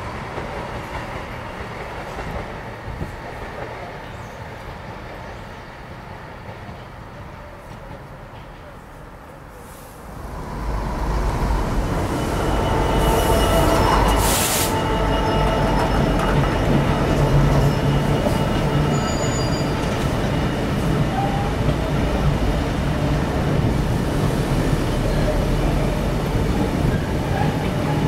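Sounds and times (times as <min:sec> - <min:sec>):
freight train rumbling past: 0:00.0 - 0:28.0
high wheel squeals: 0:10.3 - 0:21.6.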